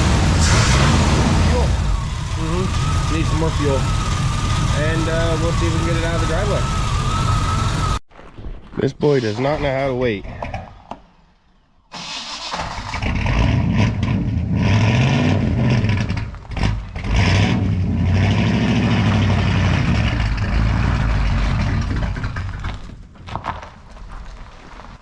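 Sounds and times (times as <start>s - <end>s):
engine running and revving: 0.0s - 8.0s, 12.8s - 22.8s.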